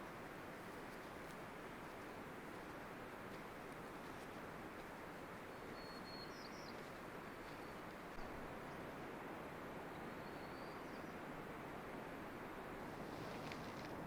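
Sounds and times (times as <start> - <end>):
outdoor background hiss: 0.0 - 14.0
faint bird chirps: 5.5 - 7.9, 9.9 - 11.2.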